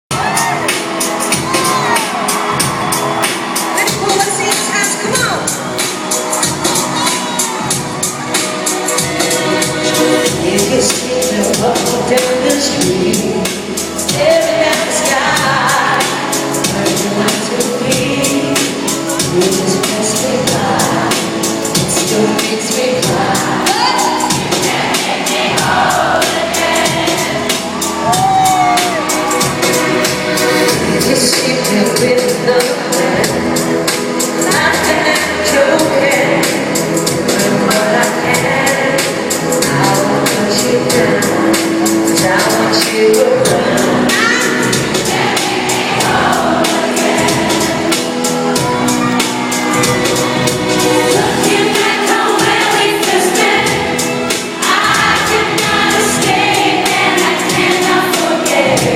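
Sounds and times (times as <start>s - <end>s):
steady drum beat: 0.1s - 58.9s
women singing pop music: 0.1s - 58.9s.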